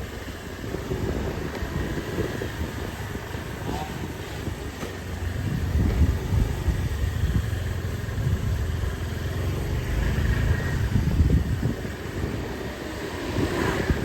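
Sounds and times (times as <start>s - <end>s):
busy street noise: 0.0s - 14.0s
motorbike engine running: 0.0s - 14.0s.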